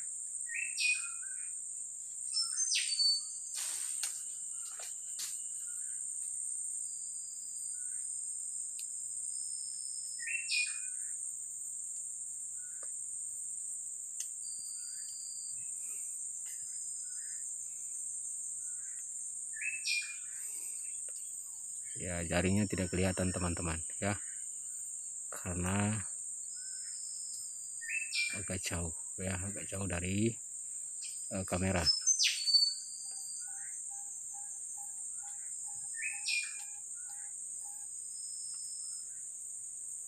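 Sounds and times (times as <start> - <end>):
birds whistling calls: 0.5 - 1.5, 2.3 - 3.4, 9.6 - 11.1, 19.6 - 20.4, 26.6 - 28.6, 31.8 - 39.1
high-pitched insect drone: 14.3 - 40.0.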